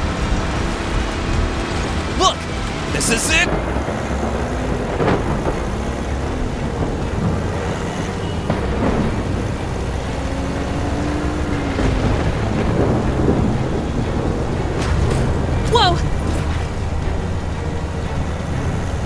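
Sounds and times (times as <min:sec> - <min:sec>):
car driving rumble: 0:00.0 - 0:03.5.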